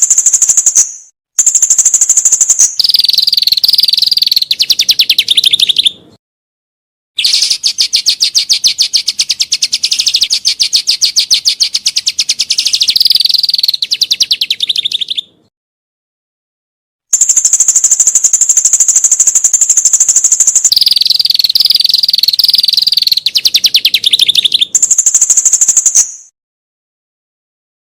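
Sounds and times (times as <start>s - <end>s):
songbird high-pitched trills: 0.0s - 6.1s, 7.2s - 15.4s, 17.1s - 26.3s.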